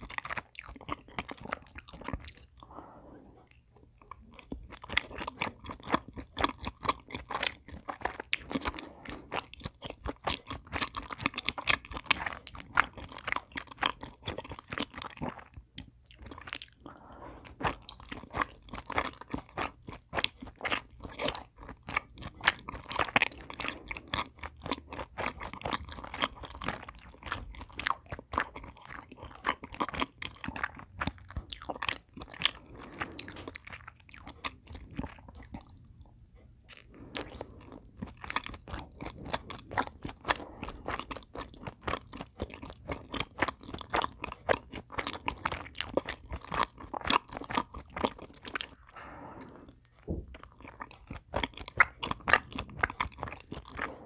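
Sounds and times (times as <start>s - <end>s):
chewing crunches and mouth clicks: 0.0s - 54.0s.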